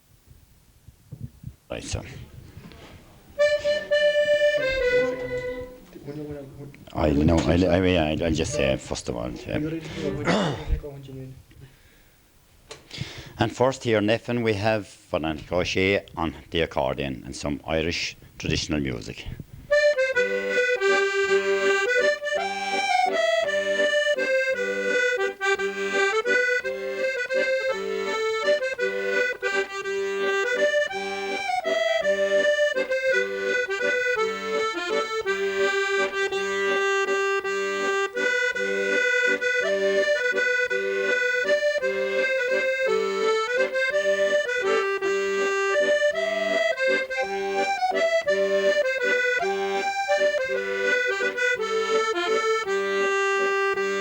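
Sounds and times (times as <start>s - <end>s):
accordion playing folk tune: 1.7s - 11.0s, 12.8s - 54.0s.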